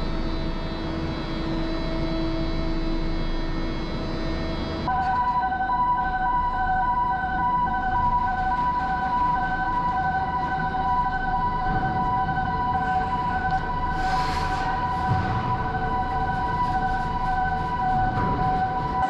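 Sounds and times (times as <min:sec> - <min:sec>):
low workshop rumble: 0:00.0 - 0:19.0
electronic warning alarm chord: 0:04.5 - 0:19.0
hiss: 0:14.0 - 0:14.8.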